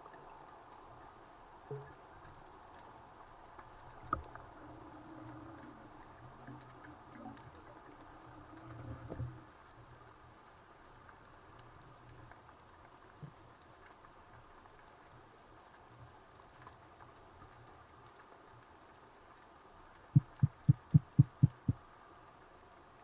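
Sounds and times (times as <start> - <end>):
faint underwater crackling: 0.0 - 23.0
low knock: 20.2 - 21.8.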